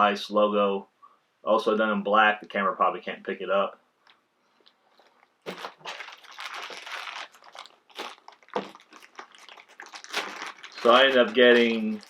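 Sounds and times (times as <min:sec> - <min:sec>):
packaging crinkling and rustling: 0:04.0 - 0:12.0.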